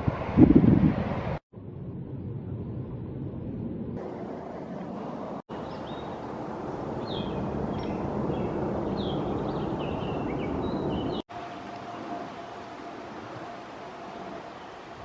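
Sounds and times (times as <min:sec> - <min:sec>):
songbird chirping: 0:07.0 - 0:12.1.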